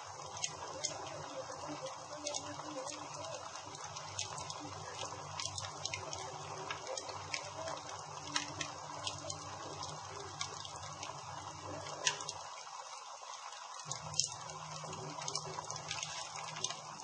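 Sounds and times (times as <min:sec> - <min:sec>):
campfire crackling and popping: 0:00.0 - 0:17.0
fire hissing: 0:00.0 - 0:17.0.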